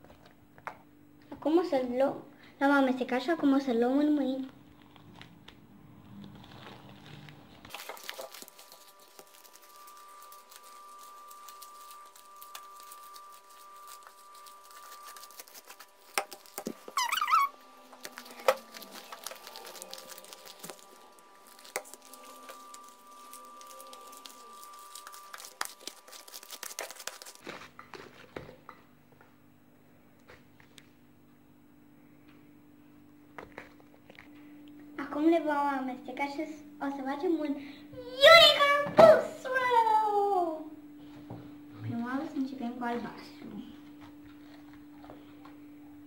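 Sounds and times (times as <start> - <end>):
slime squishing and crackling: 4.7 - 28.3
slime squeak: 9.5 - 27.7.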